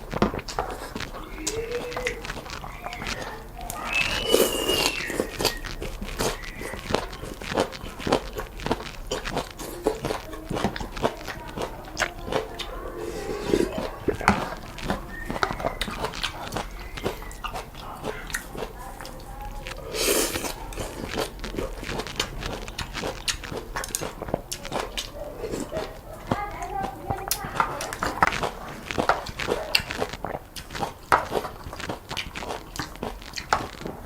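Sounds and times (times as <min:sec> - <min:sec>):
loud slurp: 0:00.0 - 0:26.0
mouth clicks: 0:00.0 - 0:34.0
wet chewing and lip smacks: 0:00.0 - 0:34.0.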